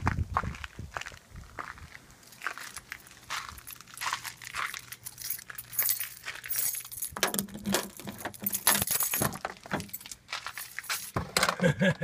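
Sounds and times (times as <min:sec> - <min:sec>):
keys jangling: 0:04.4 - 0:11.3.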